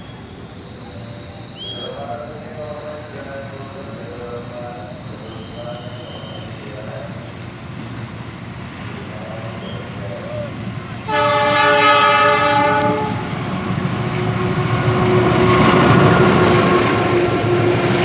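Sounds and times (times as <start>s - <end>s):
locomotive engine hum: 0.0s - 18.0s
train wheels rumbling: 0.0s - 18.0s
locomotive horn: 11.0s - 13.4s.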